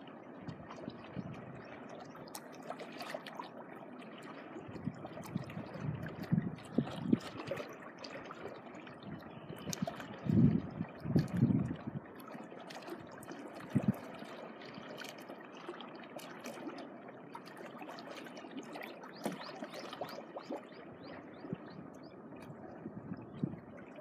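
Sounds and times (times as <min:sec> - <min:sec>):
small waves washing on shore: 0:00.0 - 0:24.0.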